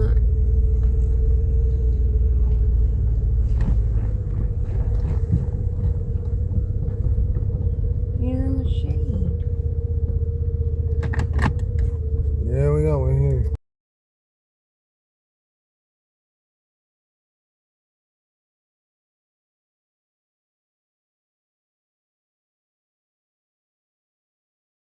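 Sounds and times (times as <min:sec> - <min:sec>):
constant hum: 0:00.0 - 0:13.6
engine and tyre rumble: 0:00.0 - 0:13.6.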